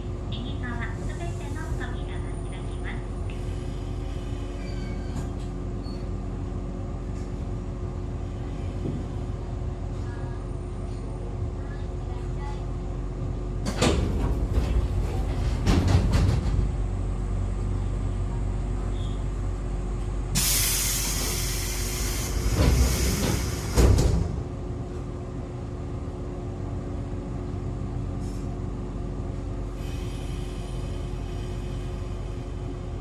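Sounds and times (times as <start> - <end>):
train equipment humming: 0.0 - 33.0
clunks: 13.6 - 16.8
compressed-air hiss: 20.4 - 24.0.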